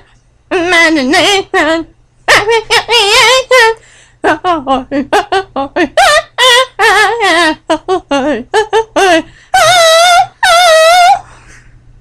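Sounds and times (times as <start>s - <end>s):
high-pitched wavering yelps: 9.6s - 11.3s.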